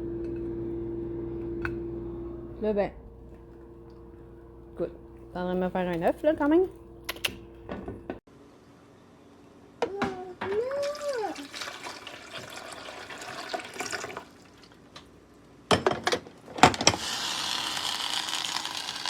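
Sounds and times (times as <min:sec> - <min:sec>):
sharp clicks: 0:07.0 - 0:07.4
water running and pouring: 0:10.8 - 0:14.9, 0:17.0 - 0:19.0.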